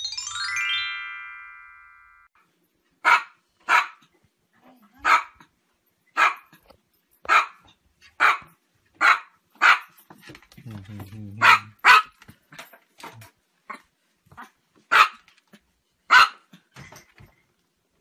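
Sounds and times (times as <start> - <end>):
chime sound effect: 0.0 - 2.4
small dog barking: 3.0 - 4.1, 5.0 - 5.5, 6.2 - 6.6, 7.2 - 10.0, 11.4 - 12.2, 14.4 - 15.3, 16.1 - 16.5.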